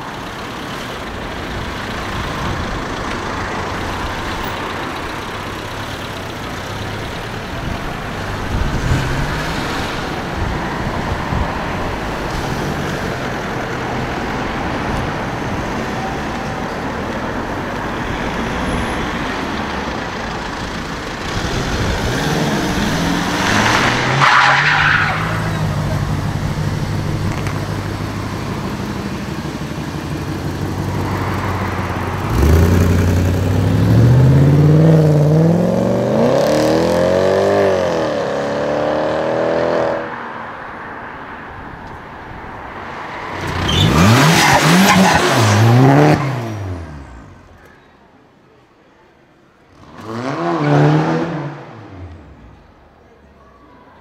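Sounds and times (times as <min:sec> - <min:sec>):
cars driving slowly past: 0:00.0 - 0:54.0
traffic hum: 0:00.0 - 0:54.0
car accelerating hard: 0:21.1 - 0:40.2, 0:43.2 - 0:47.4.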